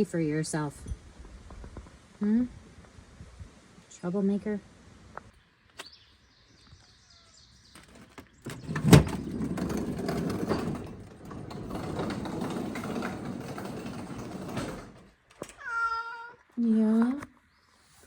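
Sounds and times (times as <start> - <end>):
cat trap rattling and scraping: 7.8 - 15.2.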